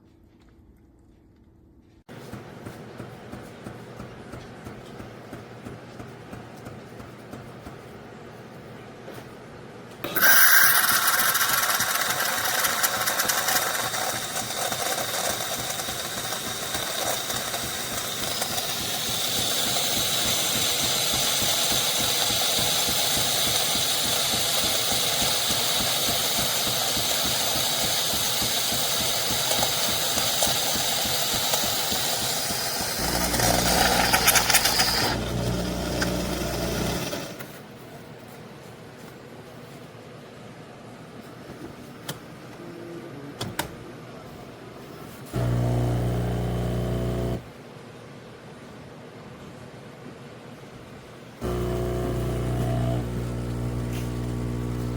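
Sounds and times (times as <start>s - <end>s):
espresso machine whirring and hissing: 10.0s - 37.7s, 45.3s - 47.5s, 51.4s - 54.9s
low buzz: 32.4s - 37.2s, 45.3s - 47.5s, 51.4s - 54.9s.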